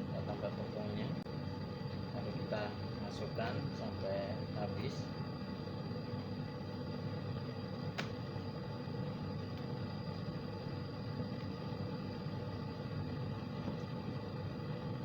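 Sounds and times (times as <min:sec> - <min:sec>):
sharp click: 0:08.0 - 0:08.2.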